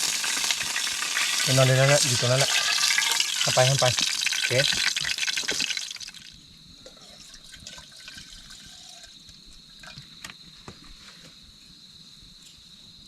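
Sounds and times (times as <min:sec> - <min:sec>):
hissing watery noise: 0:00.0 - 0:06.3
insect trilling: 0:00.0 - 0:06.5.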